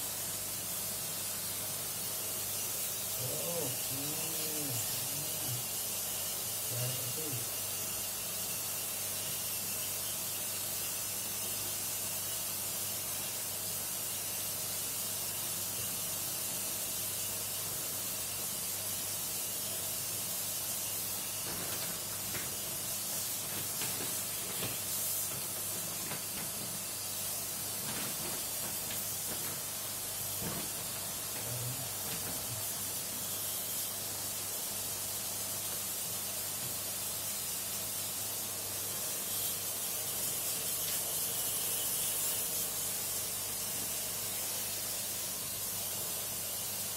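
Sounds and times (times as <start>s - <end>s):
water spray hissing: 0.8s - 7.8s, 18.9s - 46.9s
steady low hum: 2.9s - 5.9s.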